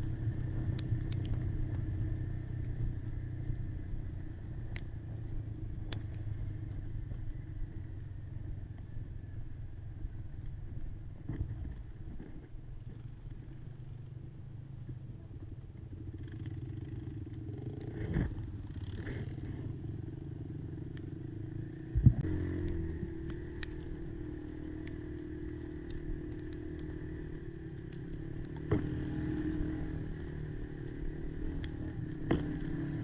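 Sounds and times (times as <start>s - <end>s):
clatter and small clicks: 0.0s - 8.0s, 22.0s - 33.0s
quad engine running: 0.0s - 33.0s.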